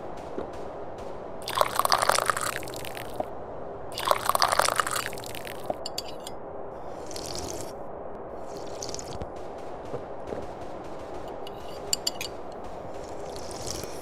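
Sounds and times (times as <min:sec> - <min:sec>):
tea slurping: 0:01.4 - 0:03.2, 0:04.0 - 0:05.8, 0:07.0 - 0:07.7, 0:08.5 - 0:09.2.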